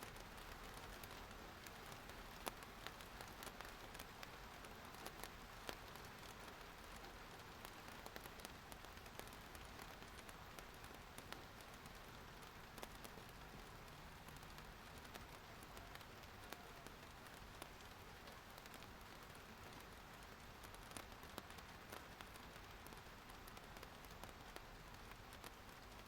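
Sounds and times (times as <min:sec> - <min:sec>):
raindrops tapping on a surface: 0:00.0 - 0:26.0.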